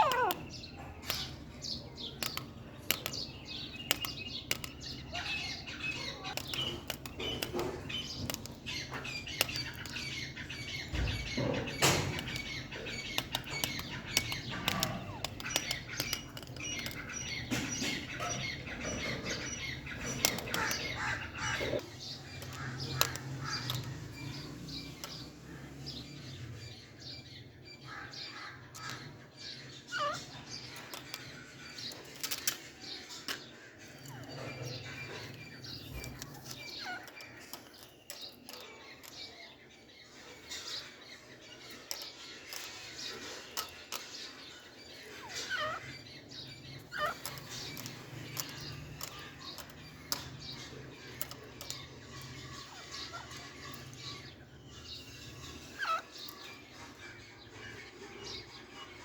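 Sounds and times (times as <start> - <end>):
sharp clicks and taps: 0.0 - 21.8
birds chirping and squawking: 0.0 - 59.0.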